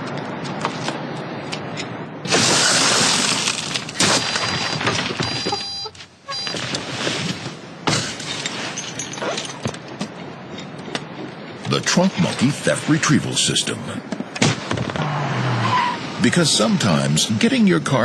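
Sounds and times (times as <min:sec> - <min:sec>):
crashes and knocks: 0:02.3 - 0:05.6
electronic beeping tones: 0:04.4 - 0:06.6.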